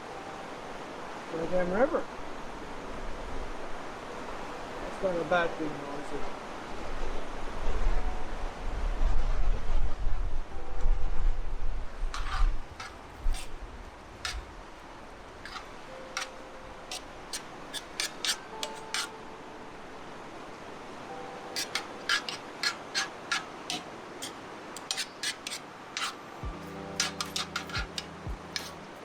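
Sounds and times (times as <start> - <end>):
food sizzling on a griddle: 12.1 - 19.2, 21.5 - 29.0.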